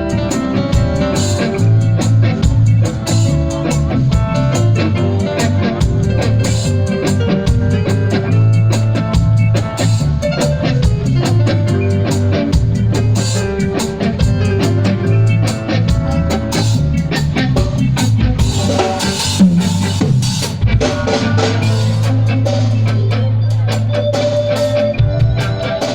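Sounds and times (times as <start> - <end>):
bass guitar: 0.0 - 25.9
drum kit played busily: 0.0 - 25.9
electric guitar: 0.0 - 25.9.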